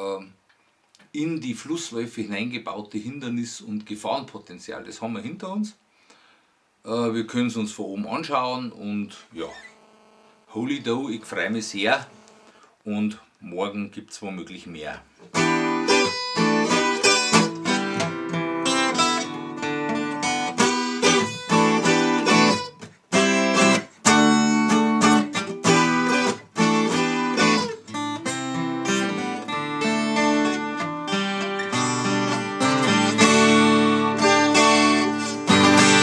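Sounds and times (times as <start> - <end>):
acoustic string instrument strummed: 15.3 - 36.0.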